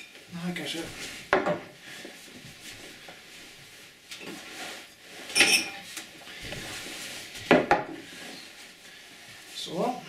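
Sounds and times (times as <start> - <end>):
glass clink: 5.3 - 5.8
glass handling noise: 5.3 - 5.8.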